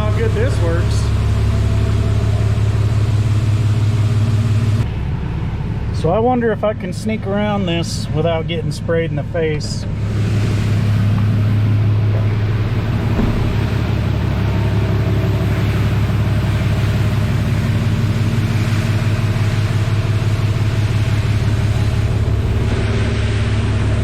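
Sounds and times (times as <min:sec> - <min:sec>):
car wash low hum: 0:00.0 - 0:24.0
water spray hissing: 0:09.9 - 0:22.7.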